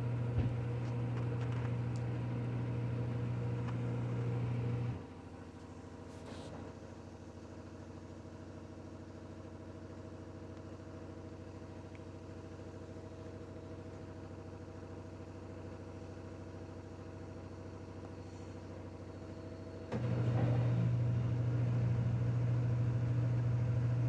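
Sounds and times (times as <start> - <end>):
washing machine spinning: 0.0 - 5.2, 19.7 - 24.0.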